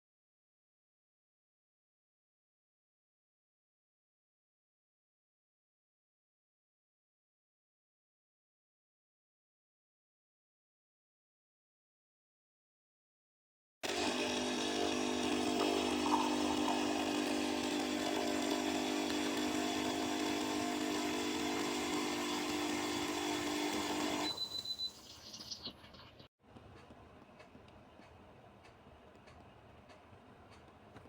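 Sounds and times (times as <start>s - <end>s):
espresso machine buzzing hiss: 13.8s - 24.4s
espresso machine sputter: 13.8s - 24.5s.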